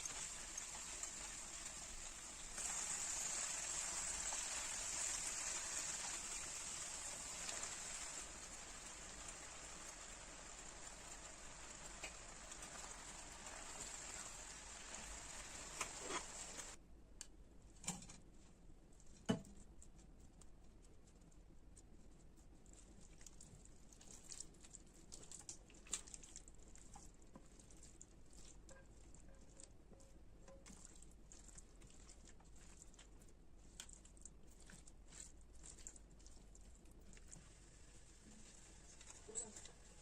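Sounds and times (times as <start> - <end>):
faint steady hiss: 0.0 - 31.0, 34.6 - 40.0.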